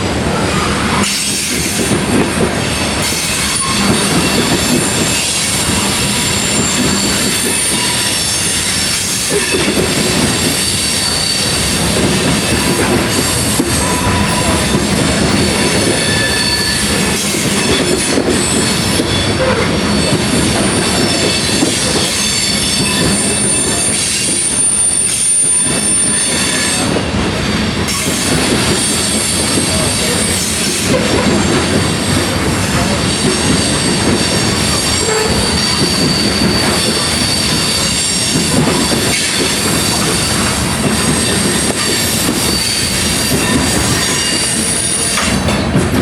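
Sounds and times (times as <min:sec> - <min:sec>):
steel wheels clattering on rail: 0:00.0 - 0:46.0
high-pitched wheel squeal: 0:03.2 - 0:09.5, 0:10.4 - 0:11.8, 0:12.5 - 0:14.8, 0:15.4 - 0:26.9, 0:32.8 - 0:40.4, 0:41.0 - 0:45.2.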